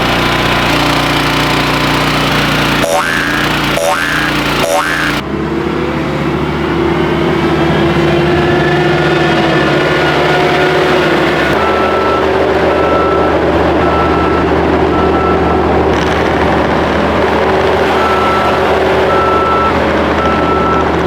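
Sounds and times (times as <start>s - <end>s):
heavy equipment engine running: 0.0s - 21.0s
backup alarm beeping: 2.8s - 5.2s.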